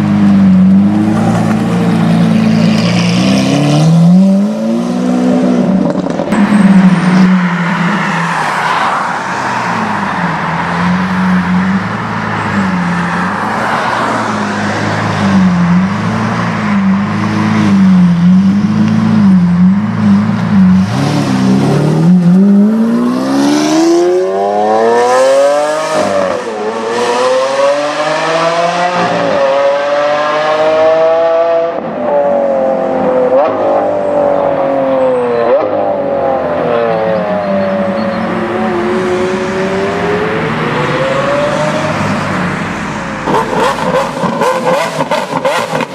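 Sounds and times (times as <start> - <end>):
sports car engine accelerating: 9.9 - 45.9.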